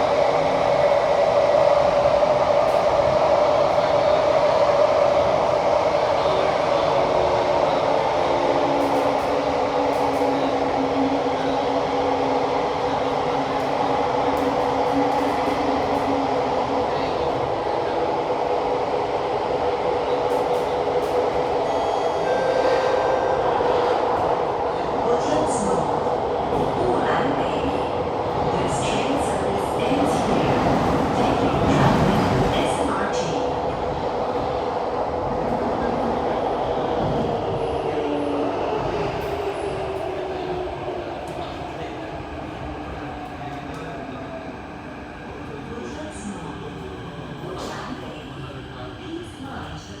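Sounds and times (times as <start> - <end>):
train ride rumble: 0.0 - 50.0
high-pitched train whine: 21.4 - 24.0.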